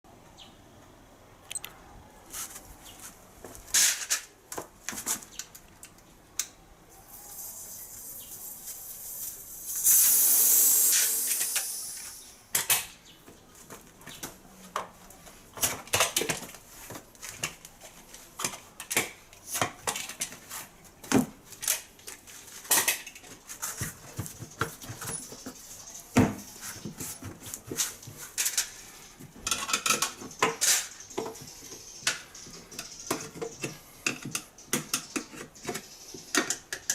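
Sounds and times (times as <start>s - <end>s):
loud burst of hiss: 7.3s - 12.4s.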